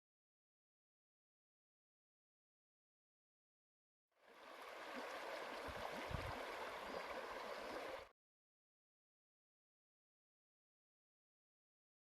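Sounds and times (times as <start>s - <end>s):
flowing river water: 4.2s - 8.1s.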